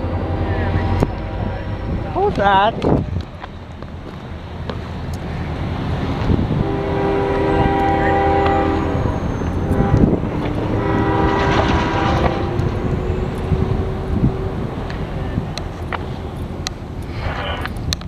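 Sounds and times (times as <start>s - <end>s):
locomotive horn blasts: 0.0s - 2.0s, 6.5s - 14.6s
steady rumble: 0.0s - 18.0s.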